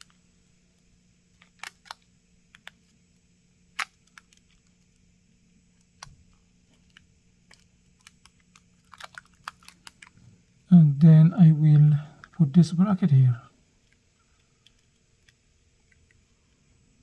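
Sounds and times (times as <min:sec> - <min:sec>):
faint steady hum: 0:00.0 - 0:17.0
small parts clicking and tapping: 0:00.8 - 0:02.9, 0:03.8 - 0:05.0, 0:05.8 - 0:10.2, 0:13.8 - 0:16.2.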